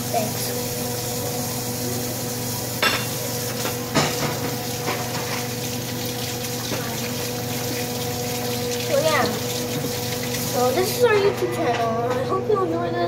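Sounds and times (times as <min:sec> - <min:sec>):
tap water running: 0:00.0 - 0:12.2.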